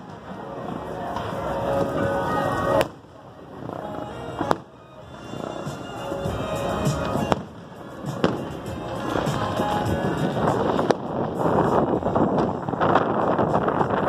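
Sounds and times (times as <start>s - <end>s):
fireworks bursting: 0.0s - 14.0s
music playing: 0.0s - 14.0s.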